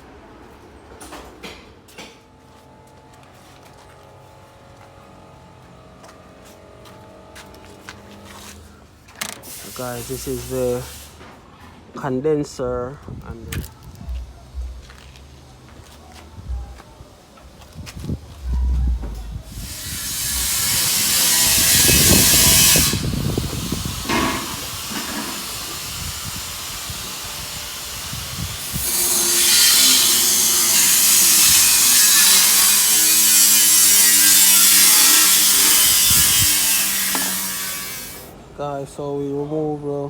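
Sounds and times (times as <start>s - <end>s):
hiss of rushing air: 9.4s - 11.2s.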